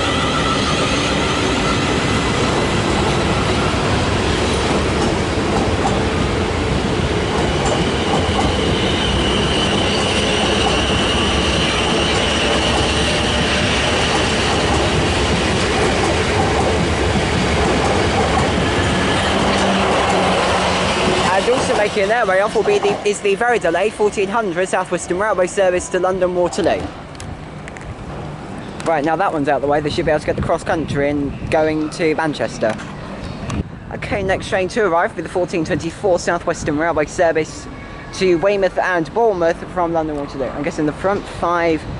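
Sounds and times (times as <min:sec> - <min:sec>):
high wheel squeal: 0:00.0 - 0:03.8, 0:07.5 - 0:14.6
train wheels clicking over rail joints: 0:02.0 - 0:24.2.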